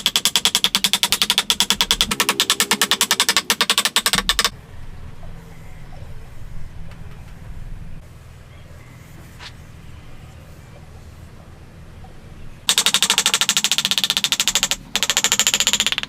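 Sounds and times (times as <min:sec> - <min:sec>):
rapid mechanical rattle of clicks: 0:00.0 - 0:04.6, 0:12.6 - 0:16.0
low steady hum: 0:04.2 - 0:13.0.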